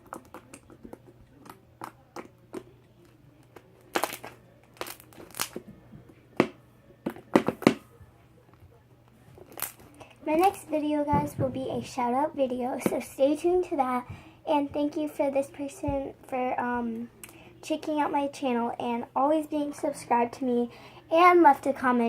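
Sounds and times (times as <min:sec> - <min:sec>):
slime crackling pops: 0:03.9 - 0:05.6.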